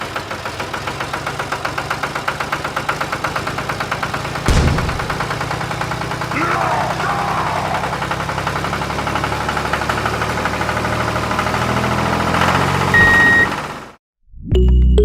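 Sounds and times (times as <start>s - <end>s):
engine idling with knocking beat: 0.0s - 11.8s
short high beep: 13.0s - 13.5s.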